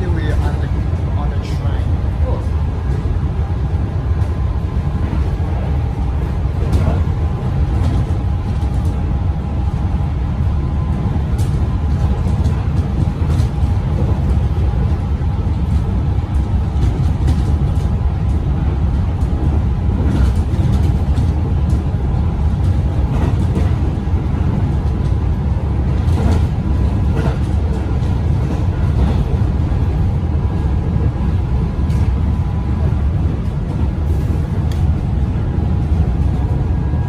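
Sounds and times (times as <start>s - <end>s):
train running low rumble: 0.0s - 37.0s.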